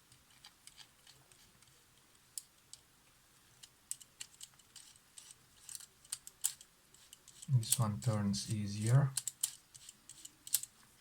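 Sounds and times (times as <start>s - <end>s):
small clicks from camera parts: 9.2s - 10.7s.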